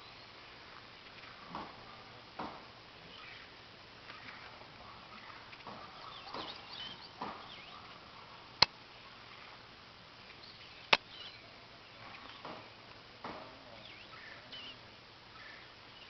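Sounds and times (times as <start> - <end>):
faint bird chirps: 3.0 - 9.6, 10.3 - 12.8, 13.6 - 16.0.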